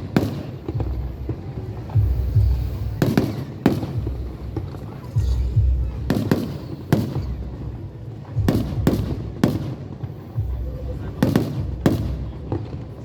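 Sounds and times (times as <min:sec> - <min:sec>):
fireworks cracking: 0:00.0 - 0:13.0.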